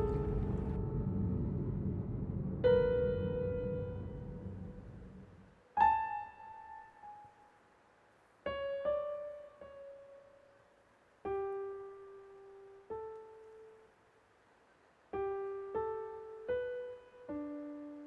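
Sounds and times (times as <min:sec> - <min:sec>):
slow piano notes: 0:00.0 - 0:14.0, 0:15.1 - 0:18.0.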